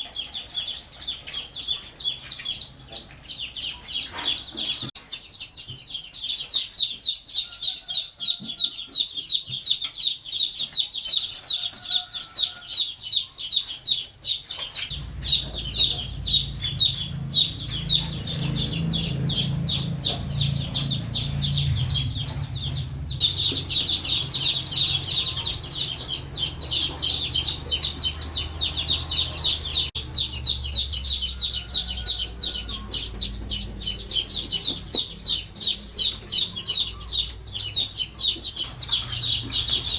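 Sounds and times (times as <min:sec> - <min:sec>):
high pulsing chirring: 0:14.9 - 0:26.6
low rumble: 0:14.9 - 0:36.1.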